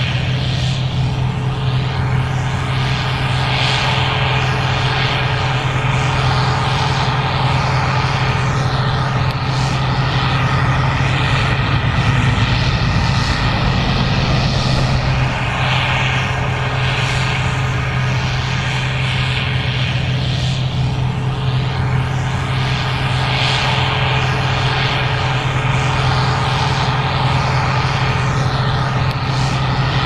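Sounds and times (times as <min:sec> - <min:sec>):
combine engine drone: 0:00.0 - 0:30.0.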